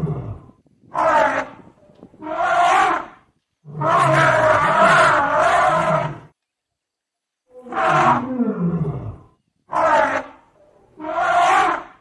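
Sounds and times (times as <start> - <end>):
harsh calls of large animal: 2.2 - 6.3, 7.5 - 12.0.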